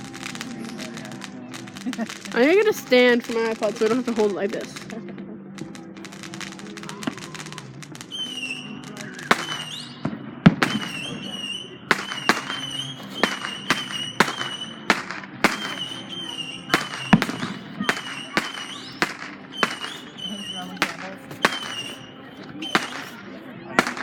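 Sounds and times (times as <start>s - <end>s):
fireworks bangs: 0.0s - 24.0s
high wavering firework whistle: 5.7s - 24.0s.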